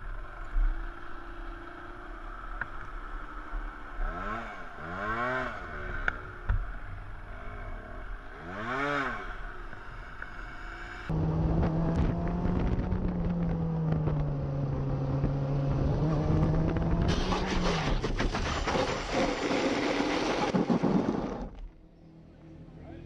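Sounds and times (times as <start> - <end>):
knocks and rattles: 17.1 - 21.6.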